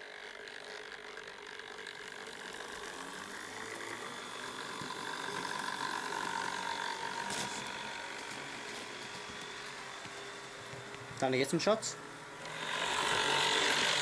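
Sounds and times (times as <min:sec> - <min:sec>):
model train motor whining: 0:00.0 - 0:14.0.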